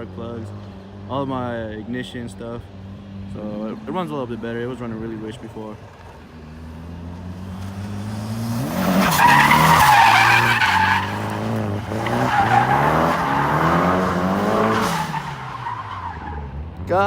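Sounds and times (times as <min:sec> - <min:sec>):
car engine revving: 0:06.4 - 0:16.9
tyres squealing and skidding: 0:07.0 - 0:16.8.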